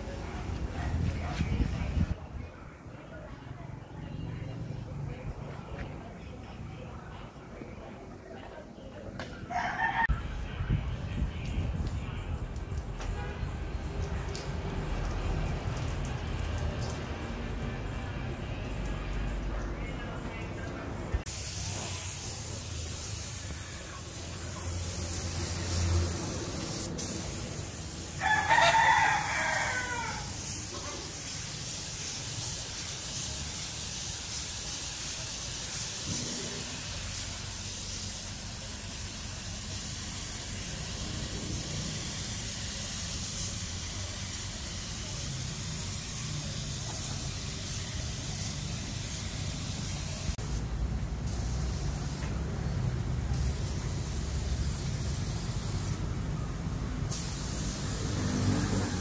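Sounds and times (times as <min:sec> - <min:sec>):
rooster crowing: 0:09.5 - 0:10.2, 0:28.2 - 0:30.5
spray gun hissing: 0:21.2 - 0:50.6, 0:51.2 - 0:52.4, 0:53.3 - 0:56.0, 0:57.1 - 0:59.0.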